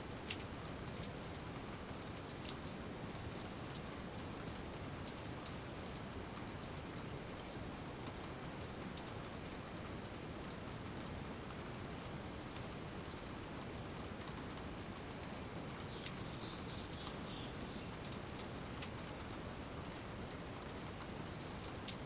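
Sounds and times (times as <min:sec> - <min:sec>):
rain falling: 0:00.1 - 0:22.0
bird chirping: 0:15.6 - 0:18.0
raindrops clicking: 0:17.9 - 0:20.0, 0:20.6 - 0:22.0.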